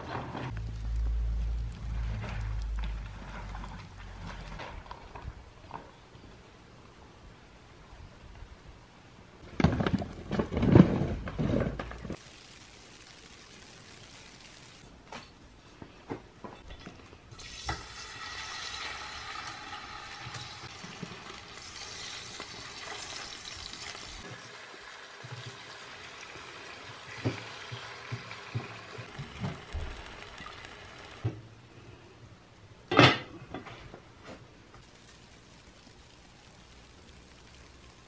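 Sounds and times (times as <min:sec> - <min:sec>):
potato slices sizzling in oil: 0:12.0 - 0:14.9, 0:17.3 - 0:31.3, 0:34.6 - 0:38.0.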